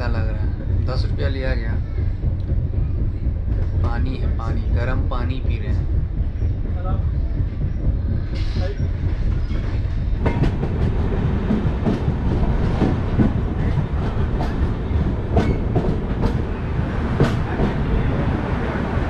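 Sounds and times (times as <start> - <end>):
train coach rumbling on track: 0.0 - 19.0
wheels clacking over rail joints: 8.4 - 18.4.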